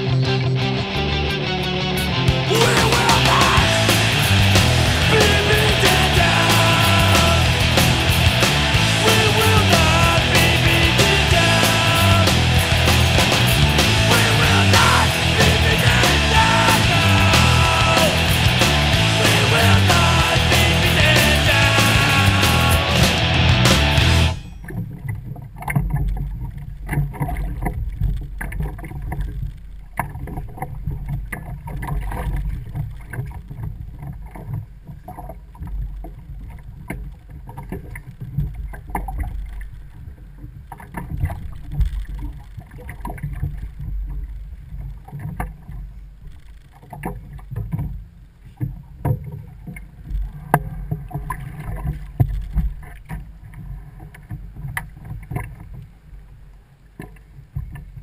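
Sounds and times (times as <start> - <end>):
water lapping against a hull: 24.4 - 58.0.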